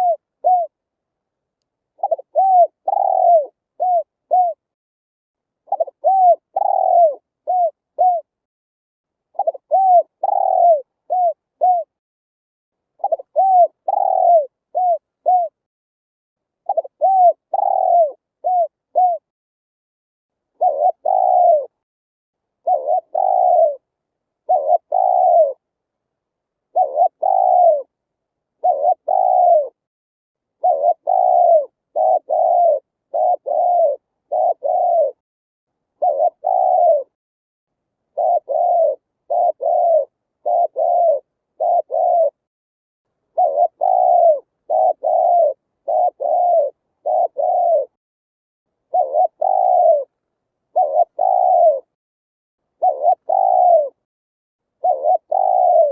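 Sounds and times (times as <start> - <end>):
dove cooing: 0.0 - 0.8, 2.0 - 4.6, 5.7 - 8.4, 9.3 - 12.0, 13.0 - 15.6, 16.6 - 19.3, 20.6 - 21.8, 22.6 - 25.6, 26.7 - 27.9, 28.6 - 29.8, 30.6 - 35.2, 36.0 - 37.2, 38.1 - 42.5, 43.3 - 48.0, 48.9 - 52.0, 52.8 - 54.0, 54.8 - 55.9.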